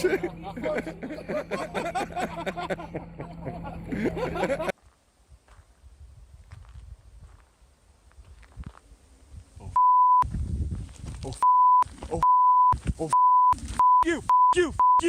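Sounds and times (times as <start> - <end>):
censor bleep tone: 9.8 - 10.3, 11.4 - 15.0.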